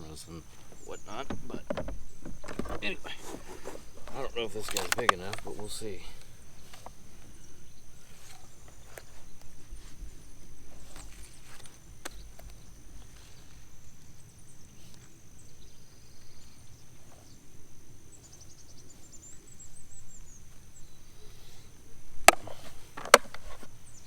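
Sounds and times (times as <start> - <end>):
bird trill: 0.0 - 6.6
high insect-like hum: 0.0 - 24.0
sharp knocks: 1.0 - 3.0.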